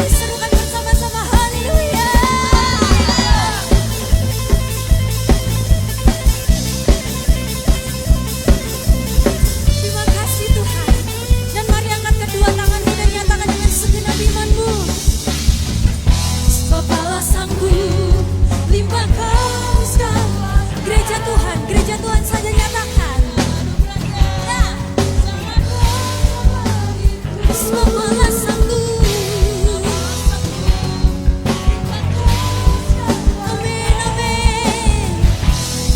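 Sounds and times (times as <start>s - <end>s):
singing: 0.0s - 4.0s, 16.8s - 35.3s
bass: 0.0s - 35.9s
drum kit beat: 0.0s - 35.9s.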